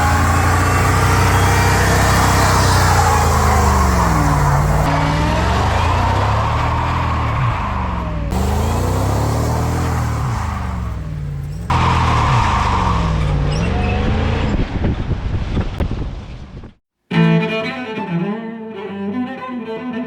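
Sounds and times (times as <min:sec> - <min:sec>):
tire squeal: 0:00.0 - 0:14.8
engine revving: 0:00.0 - 0:15.6
bowed-string music: 0:17.1 - 0:20.0.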